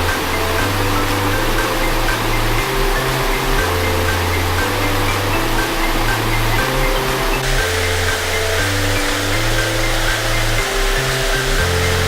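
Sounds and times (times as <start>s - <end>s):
background music with bass notes: 0.0s - 12.0s
waterfall rushing: 0.0s - 12.0s.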